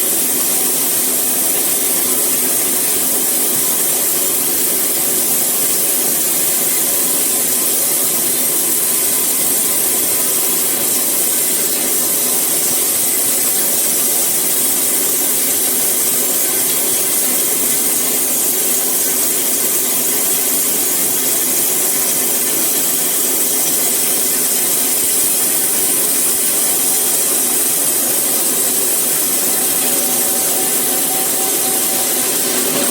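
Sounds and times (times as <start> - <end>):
saw cutting wood: 25.0 - 32.9.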